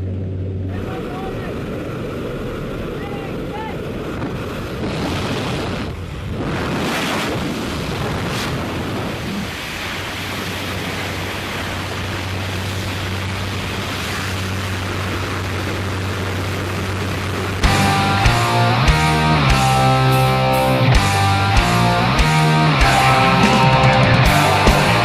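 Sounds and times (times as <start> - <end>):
wind buffeting microphone: 0.0 - 25.0
steady low drone: 11.8 - 25.0.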